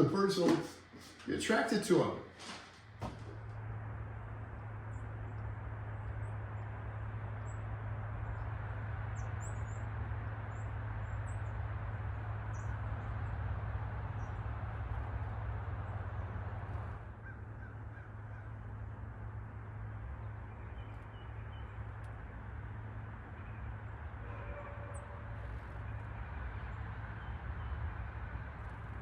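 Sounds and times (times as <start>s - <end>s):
rushing background noise: 0.0s - 29.0s
small birds chirping: 14.1s - 29.0s.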